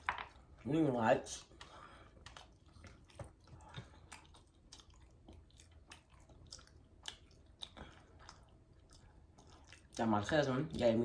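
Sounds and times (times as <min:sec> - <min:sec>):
chewing fried chicken: 0:00.0 - 0:11.0
wet mouth clicks and smacks: 0:01.3 - 0:10.0.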